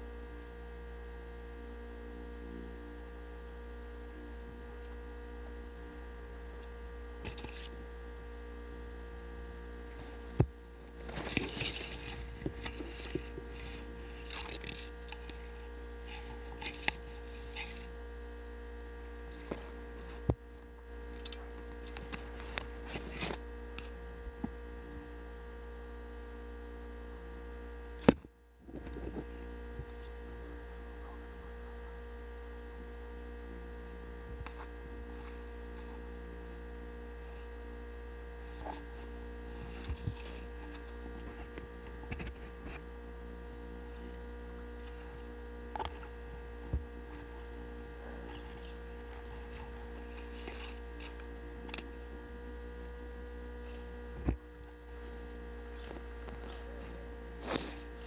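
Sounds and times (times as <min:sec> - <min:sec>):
faint steady tones: 0:00.0 - 0:58.0
low electrical hum: 0:00.0 - 0:58.0
clicks and rustles: 0:09.8 - 0:18.0, 0:21.1 - 0:24.5.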